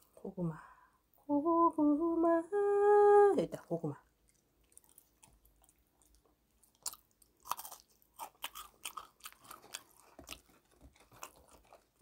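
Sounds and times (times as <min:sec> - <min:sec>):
person chewing crispy food: 0:04.1 - 0:12.0.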